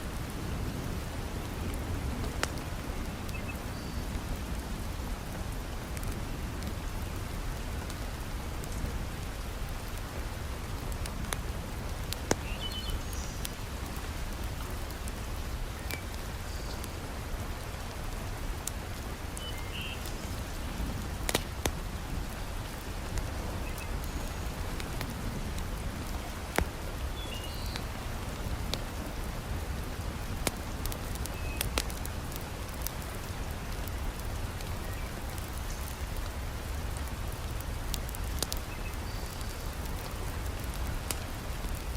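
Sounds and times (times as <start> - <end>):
heavy rain falling: 0.0 - 41.9
wood fire crackling: 0.0 - 41.9.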